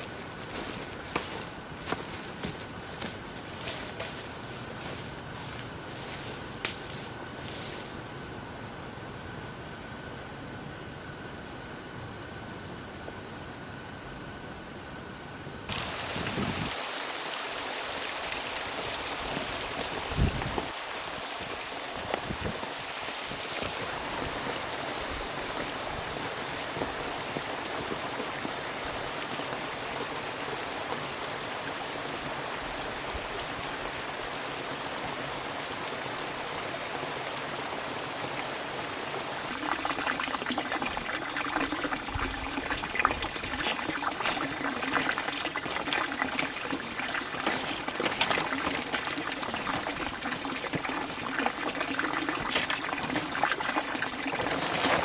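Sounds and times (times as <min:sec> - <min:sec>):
running water: 0:15.7 - 0:55.0.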